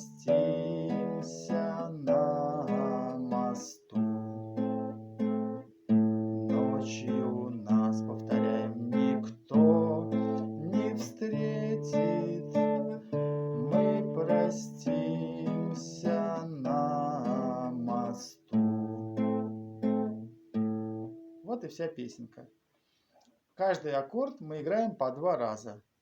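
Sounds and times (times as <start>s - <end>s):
acoustic guitar waltz accompaniment: 0.0s - 21.5s.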